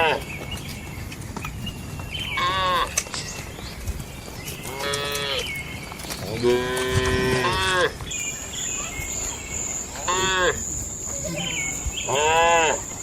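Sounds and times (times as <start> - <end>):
high insect trill: 6.3 - 13.0
cattle mooing: 6.4 - 7.9, 10.0 - 10.6, 11.4 - 12.8.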